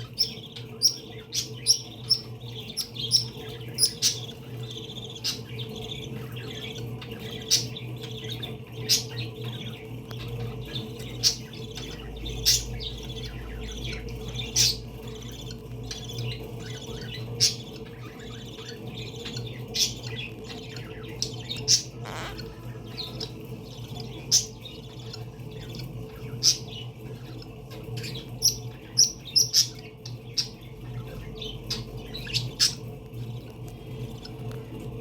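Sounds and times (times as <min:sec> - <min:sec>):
parakeets twittering: 0:00.0 - 0:35.0
parakeet squawks: 0:10.2 - 0:29.8.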